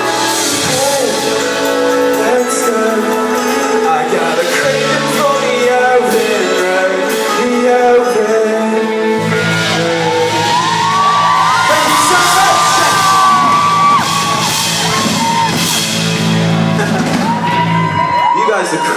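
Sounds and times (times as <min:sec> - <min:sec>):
person singing: 0:00.0 - 0:14.0
deep bass line: 0:00.0 - 0:18.3
live band playing amplified music: 0:00.0 - 0:18.9.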